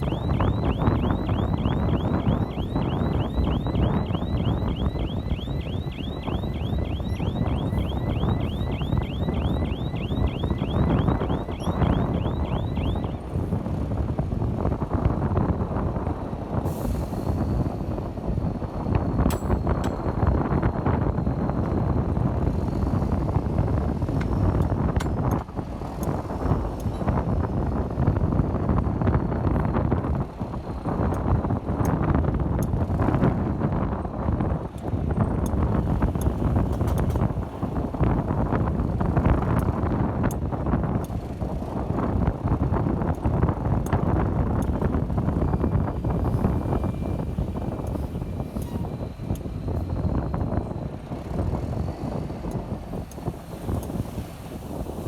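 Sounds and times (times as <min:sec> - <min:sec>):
faint high chirp: 0:00.0 - 0:13.3
bulldozer engine and tracks: 0:00.0 - 0:55.0
wind buffeting microphone: 0:00.0 - 0:55.0.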